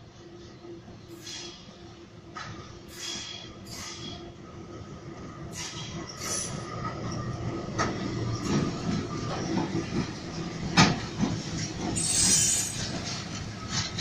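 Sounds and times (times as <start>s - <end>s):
wheels clattering over rail joints: 7.7s - 14.0s.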